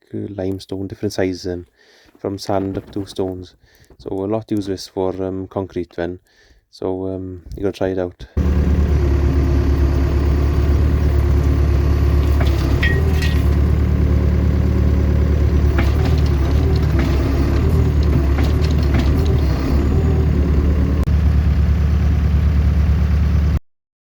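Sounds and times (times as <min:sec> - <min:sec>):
knocks and clatters: 0:08.4 - 0:21.1
tractor engine running: 0:08.4 - 0:23.6.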